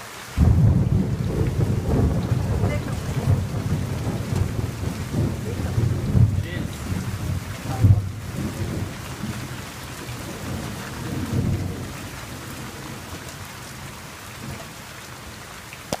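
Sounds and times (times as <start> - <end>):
steady rain: 0.0 - 16.0
thunder rumbling: 0.4 - 15.4.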